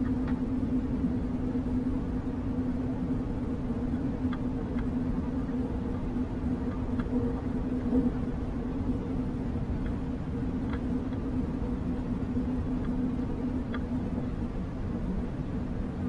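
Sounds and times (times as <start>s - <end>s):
low hum: 0.0s - 16.0s
faint light clicks: 10.6s - 11.3s.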